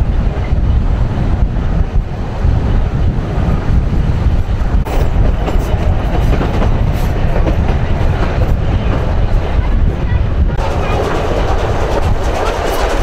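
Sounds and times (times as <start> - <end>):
train rumbling along track: 0.0 - 13.0
wheels clicking over rail joints: 10.6 - 13.0.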